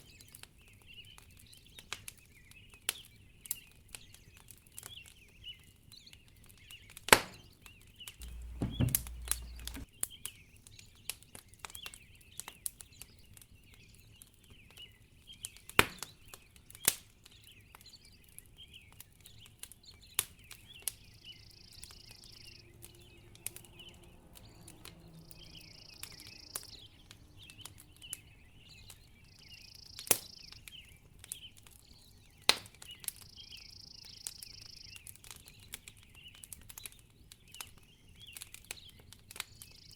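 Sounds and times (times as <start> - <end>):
birds chirping: 8.2 - 9.8
low thud: 8.2 - 9.8
soft hisses: 8.2 - 9.8
wood fire crackling: 8.2 - 9.8.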